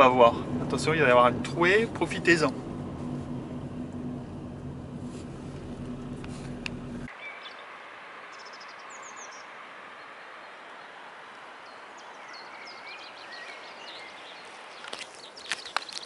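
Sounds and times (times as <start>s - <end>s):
steady outdoor hiss: 0.0s - 16.0s
small birds chirping: 7.1s - 11.0s, 11.6s - 16.0s.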